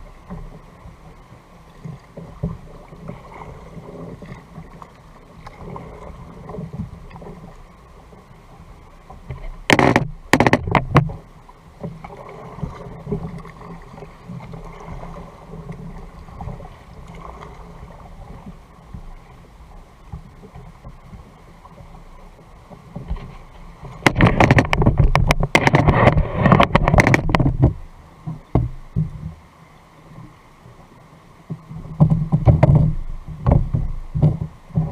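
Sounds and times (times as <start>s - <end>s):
water and wind against boat: 0.0s - 34.9s
loud knocks: 9.7s - 11.2s, 24.0s - 27.8s.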